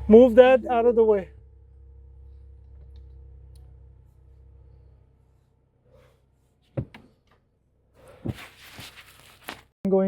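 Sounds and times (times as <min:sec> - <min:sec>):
low car engine hum: 0:00.0 - 0:08.4.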